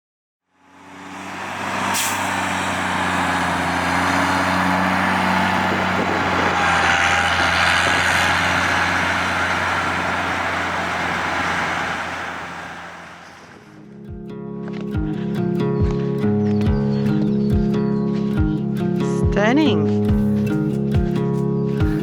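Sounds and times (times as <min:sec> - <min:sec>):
truck engine running: 0:00.6 - 0:13.8.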